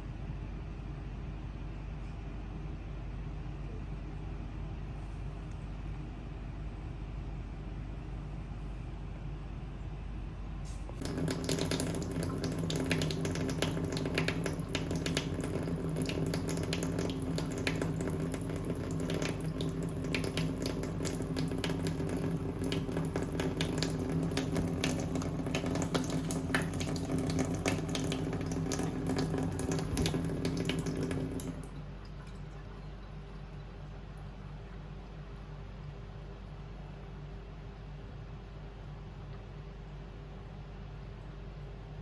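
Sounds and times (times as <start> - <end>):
water running: 11.0 - 35.1.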